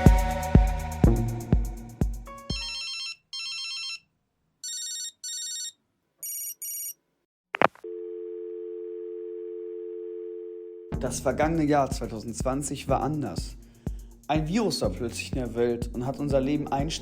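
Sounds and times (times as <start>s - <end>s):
electronic drum beat: 0.0s - 2.7s, 11.0s - 17.0s
electronic telephone ringing: 2.5s - 4.0s, 4.6s - 7.0s, 7.6s - 10.9s
dial tone: 7.8s - 10.9s.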